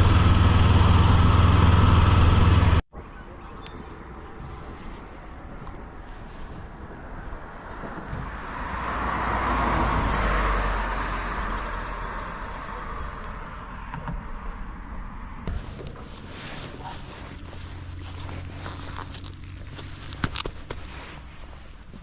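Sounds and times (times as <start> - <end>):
vehicle passing by: 7.5 - 15.4.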